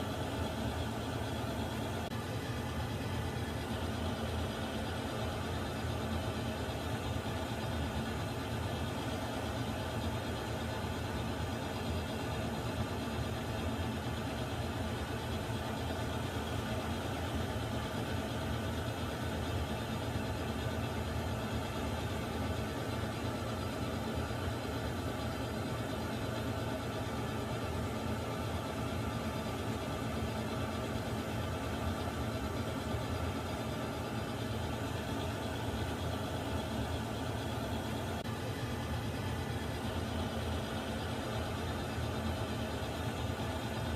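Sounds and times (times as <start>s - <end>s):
water heater humming: 0.0s - 7.9s, 19.2s - 43.9s.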